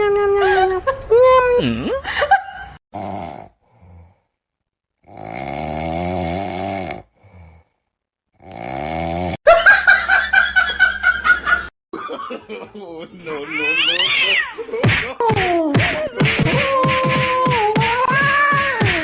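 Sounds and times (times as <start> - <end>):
person snoring: 3.0 - 4.4, 5.0 - 9.4.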